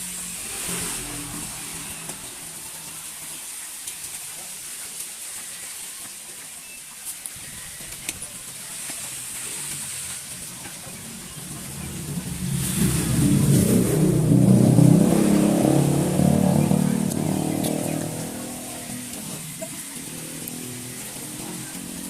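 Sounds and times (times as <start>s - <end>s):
vehicle engine passing by: 0.0s - 3.4s, 11.0s - 22.0s.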